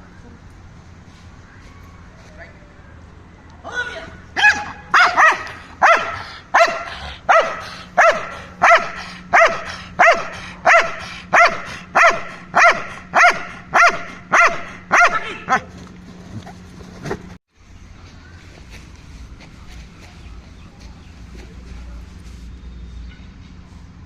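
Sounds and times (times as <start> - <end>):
dog barking: 4.4 - 15.7.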